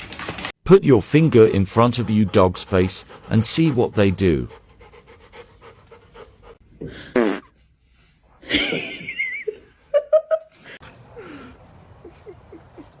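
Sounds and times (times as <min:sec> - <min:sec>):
person laughing: 0:08.4 - 0:10.5, 0:12.0 - 0:13.0.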